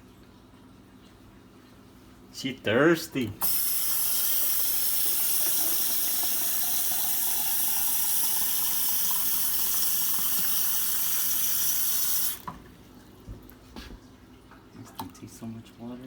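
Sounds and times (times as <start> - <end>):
water pouring into a basin: 3.4 - 12.4.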